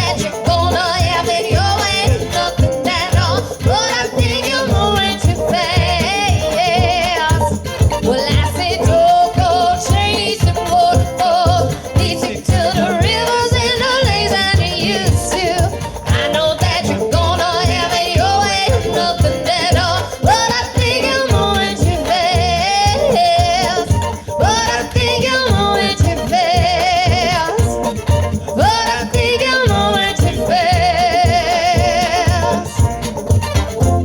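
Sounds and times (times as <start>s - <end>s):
bluegrass band music: 0.0s - 34.0s.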